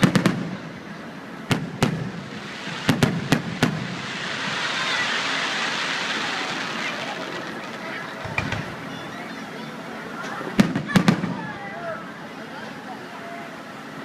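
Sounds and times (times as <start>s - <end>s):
fireworks bangs: 0.0s - 9.4s, 10.5s - 11.8s
rushing hiss: 2.0s - 8.9s.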